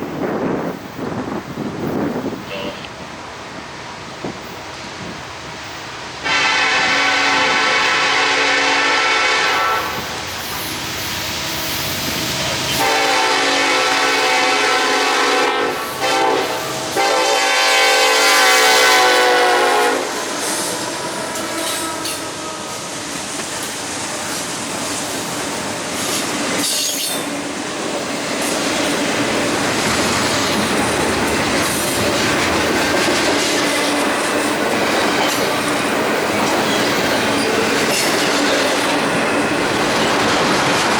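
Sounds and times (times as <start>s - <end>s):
train horn blasts: 6.2s - 10.0s, 12.7s - 23.0s
train wheel clatter: 20.0s - 40.9s.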